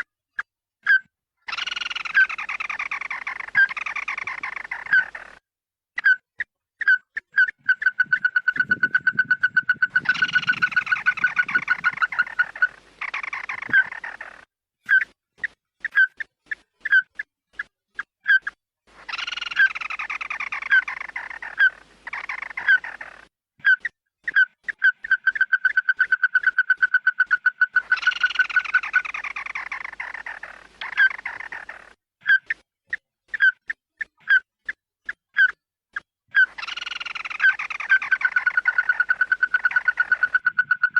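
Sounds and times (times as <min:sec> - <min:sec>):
bird calls with trills: 0:00.8 - 0:05.4, 0:06.0 - 0:40.9.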